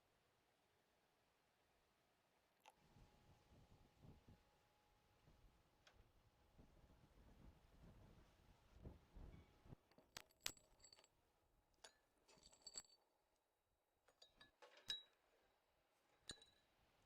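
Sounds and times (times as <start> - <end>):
clinks of glass or metal: 14.1 - 15.2, 16.2 - 16.7.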